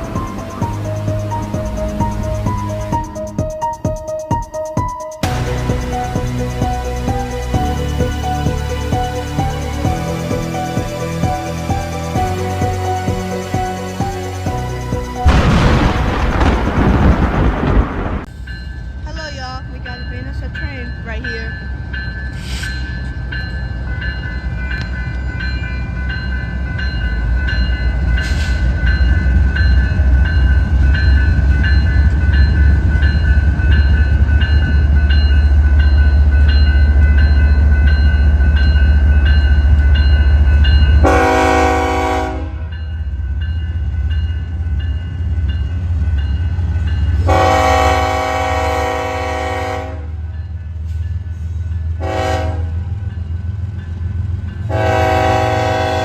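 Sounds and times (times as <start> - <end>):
freight locomotives rumbling past: 0.0 - 56.0
locomotive air horn: 41.0 - 42.7, 47.3 - 50.2, 52.0 - 52.8, 54.7 - 56.0.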